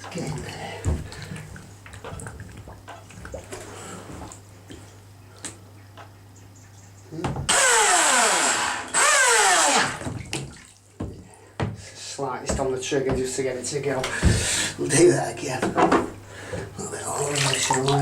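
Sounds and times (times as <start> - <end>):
water sloshing: 0.0 - 7.5, 9.7 - 18.0
toy boat motor whirring: 7.5 - 10.0.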